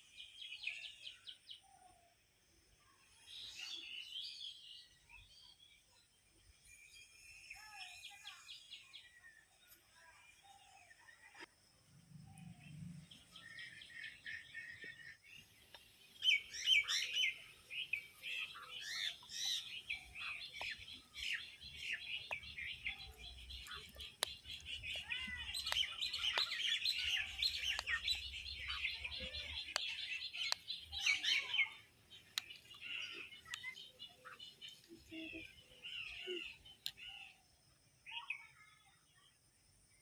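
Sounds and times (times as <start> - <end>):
birds chirping: 12.2 - 38.5.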